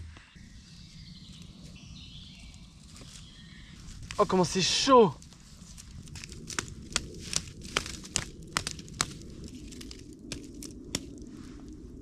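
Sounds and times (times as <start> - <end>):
low steady rustle: 0.0 - 12.0
campfire crackling and popping: 4.0 - 11.8.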